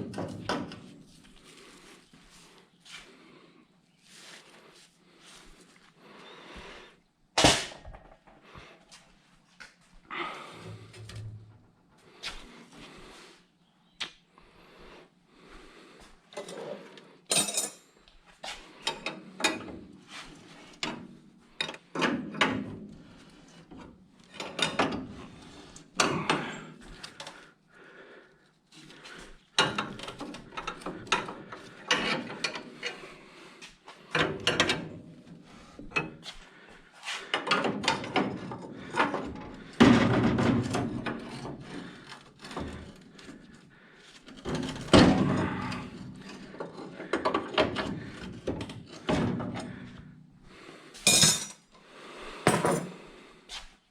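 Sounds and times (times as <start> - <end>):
tools knocking and clattering: 0.0 - 0.9, 7.4 - 8.4, 24.3 - 25.2, 29.6 - 33.0, 34.1 - 35.0, 37.3 - 43.0, 44.3 - 49.9, 51.1 - 51.6, 52.5 - 53.0.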